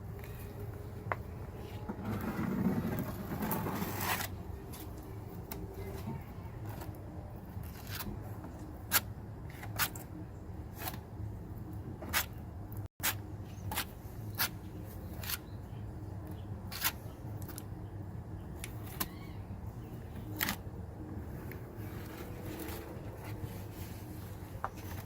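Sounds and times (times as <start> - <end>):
steady low hum: 0.0 - 25.0
filler scraping on fiberglass: 1.6 - 4.9.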